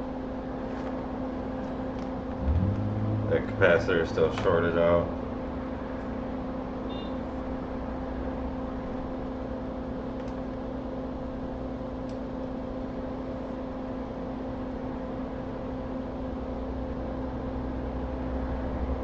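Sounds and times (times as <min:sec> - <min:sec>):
electric fan hum: 0:00.0 - 0:19.0
faint short beep: 0:06.9 - 0:07.2.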